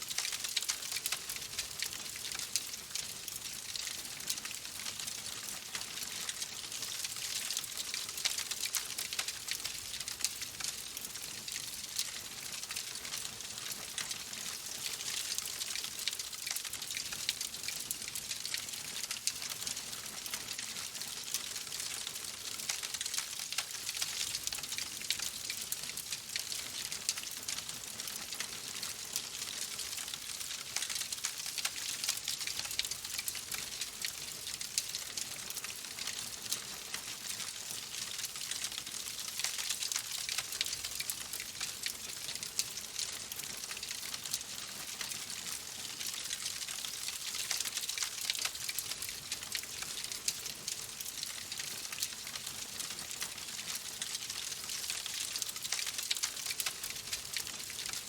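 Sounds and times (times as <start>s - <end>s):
wood fire crackling: 0.1s - 3.8s, 7.5s - 12.4s.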